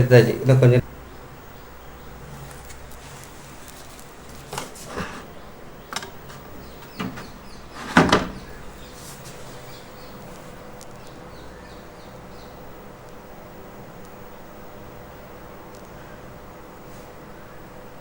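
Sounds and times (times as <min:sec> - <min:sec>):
faint steady hum: 0:00.0 - 0:18.0
knocks and bumps: 0:05.9 - 0:09.0.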